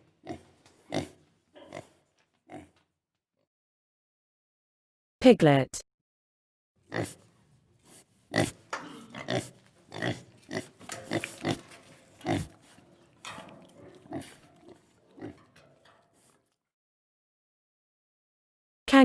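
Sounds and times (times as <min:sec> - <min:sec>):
piglets squealing and grunting: 0:06.9 - 0:16.0.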